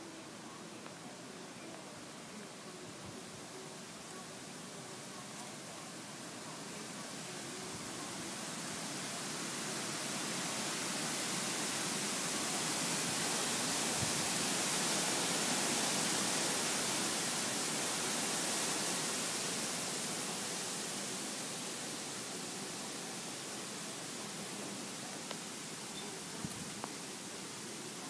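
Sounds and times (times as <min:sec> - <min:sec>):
wind blowing: 0:02.3 - 0:28.0.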